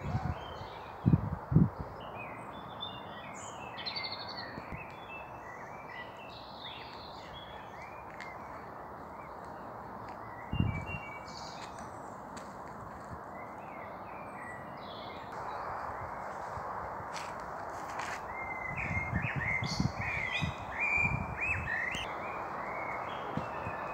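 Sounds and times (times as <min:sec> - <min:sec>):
birds singing and chirping: 0:00.0 - 0:12.4, 0:17.9 - 0:23.9
faint outdoor hiss: 0:00.0 - 0:23.9.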